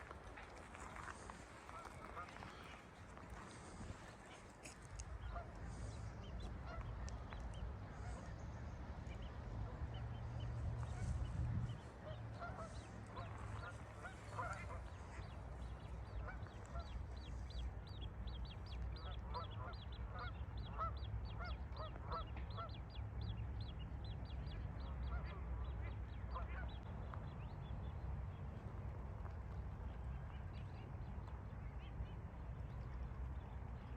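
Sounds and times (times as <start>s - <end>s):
steady low rumble: 0.0s - 33.9s
birds calling: 10.4s - 22.8s.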